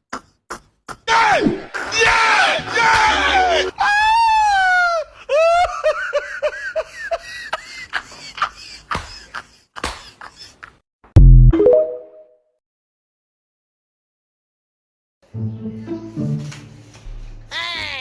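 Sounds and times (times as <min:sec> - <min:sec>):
person screaming and wailing: 0:17.5 - 0:18.0.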